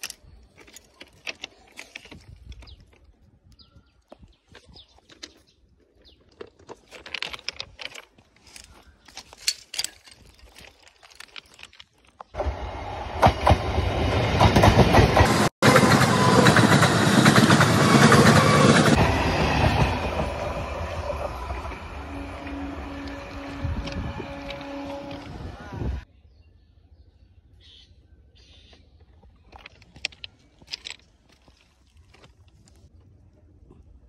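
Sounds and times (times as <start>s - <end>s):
electric train rumbling on tracks: 12.4s - 26.1s.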